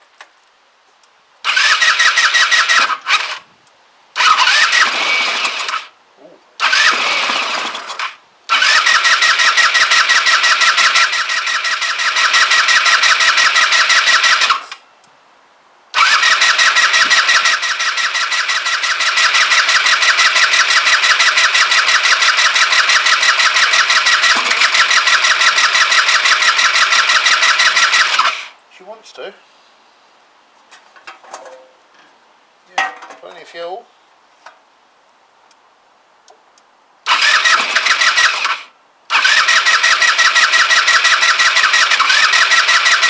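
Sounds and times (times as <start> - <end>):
scooter starter cranking engine: 1.5 - 3.4, 4.2 - 5.9, 6.6 - 14.8, 16.0 - 28.5, 37.1 - 43.0.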